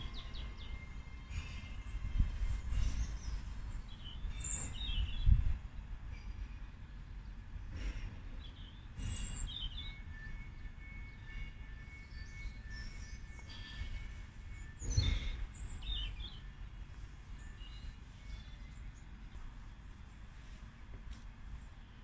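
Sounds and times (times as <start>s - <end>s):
low outdoor rumble: 0.0s - 22.0s
small birds chirping: 14.6s - 16.5s.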